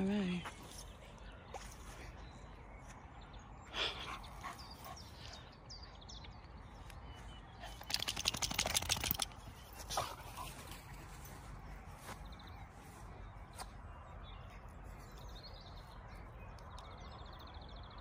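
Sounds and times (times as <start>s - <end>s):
birds chirping: 0.0s - 18.0s
rapid rattling clicks: 7.8s - 9.4s.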